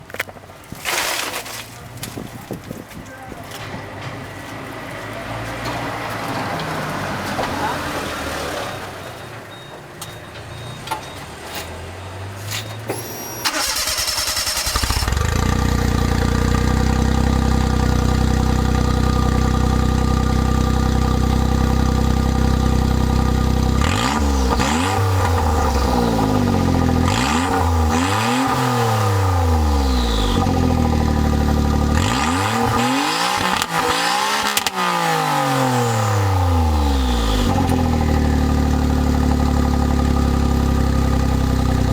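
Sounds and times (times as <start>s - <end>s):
engine cranking: 12.9s - 17.1s
engine revving: 13.4s - 20.2s, 21.1s - 41.9s
unmuffled car engine idling: 14.7s - 28.0s, 29.4s - 32.2s, 36.6s - 41.9s.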